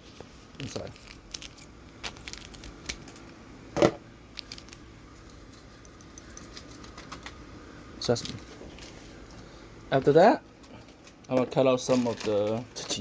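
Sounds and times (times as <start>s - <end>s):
plastic packet crinkling and tearing: 0.5s - 3.4s, 4.3s - 5.6s.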